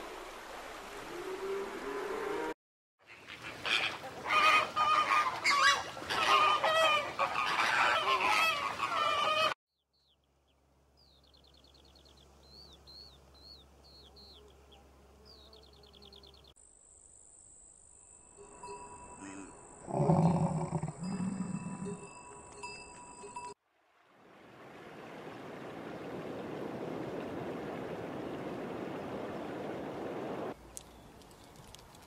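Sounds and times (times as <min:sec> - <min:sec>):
poultry calling: 0:03.1 - 0:09.6, 0:19.8 - 0:22.0
small birds chirping: 0:09.8 - 0:16.6, 0:30.6 - 0:32.0.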